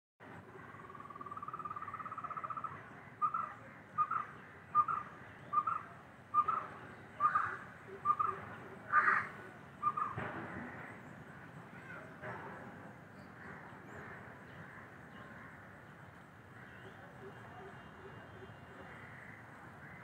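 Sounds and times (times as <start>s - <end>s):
bird trilling and calling: 0.6s - 10.2s.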